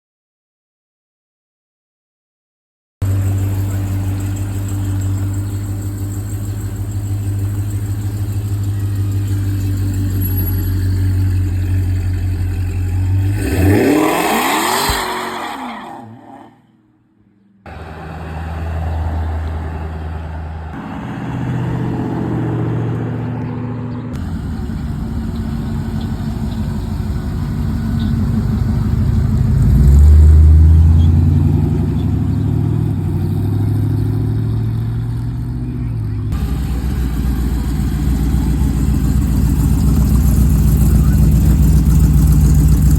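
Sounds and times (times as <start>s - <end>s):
engine revving: 3.0s - 16.2s, 17.7s - 42.9s
car engines rumbling: 3.0s - 42.9s
car accelerating past: 12.9s - 16.6s, 17.7s - 35.5s.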